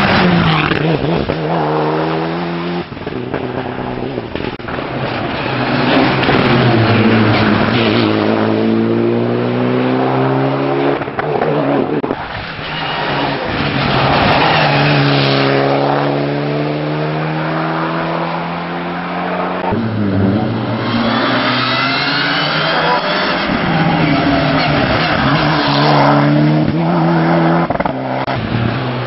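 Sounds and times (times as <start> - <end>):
engine revving: 0.0 - 4.6, 5.5 - 29.0
rally car engine passing at speed: 0.0 - 29.0.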